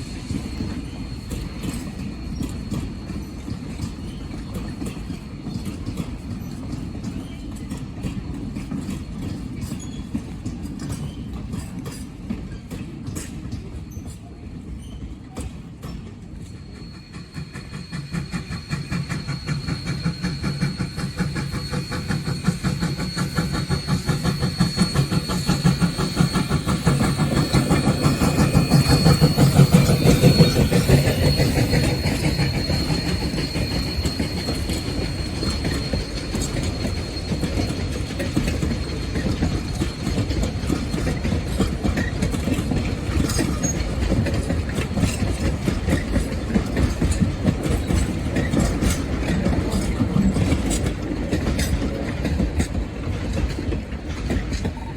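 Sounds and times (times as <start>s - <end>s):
high squeal: 0.0s - 4.8s, 15.8s - 51.9s
steam train passing: 0.0s - 54.9s.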